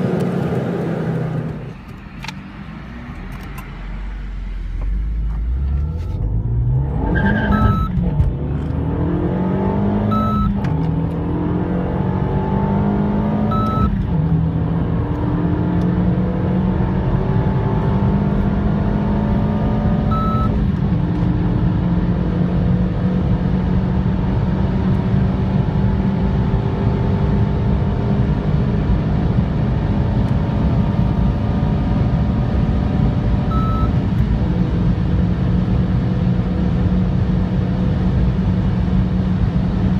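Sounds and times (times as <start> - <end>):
car engine accelerating: 0.0 - 39.9
road rumble: 0.0 - 39.9
short electronic beep: 5.6 - 6.4, 7.2 - 8.0, 10.1 - 10.6, 13.5 - 14.0, 20.1 - 20.6, 33.5 - 34.0.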